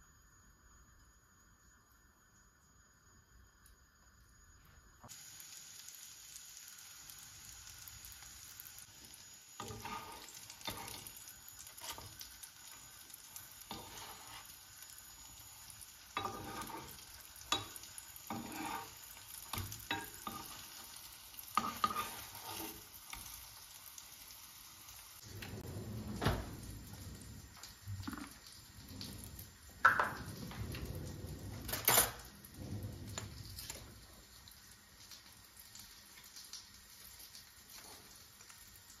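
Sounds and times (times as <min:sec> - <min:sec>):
patties sizzling in oil: 0:03.4 - 0:39.0
metal spoon scraping pan: 0:09.6 - 0:11.1, 0:13.7 - 0:14.5, 0:16.2 - 0:20.6, 0:21.6 - 0:22.8.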